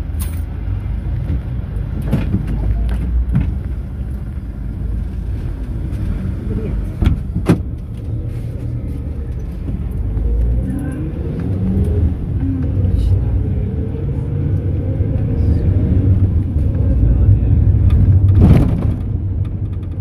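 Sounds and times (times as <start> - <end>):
minibus engine and road rumble: 0.0 - 20.0.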